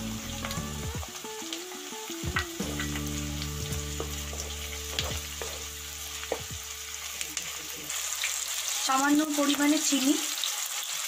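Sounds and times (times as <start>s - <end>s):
vegetables sizzling in oil: 0.0s - 11.0s
wooden spatula tapping and scraping: 3.7s - 6.6s.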